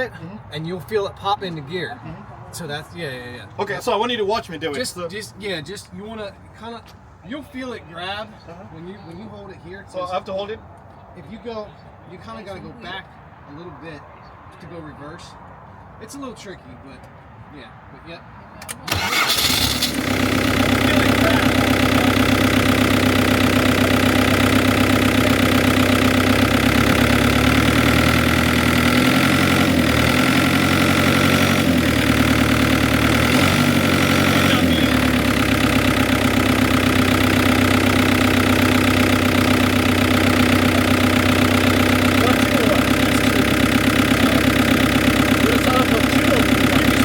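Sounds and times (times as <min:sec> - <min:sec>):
tractor engine idling: 0:18.9 - 0:47.0.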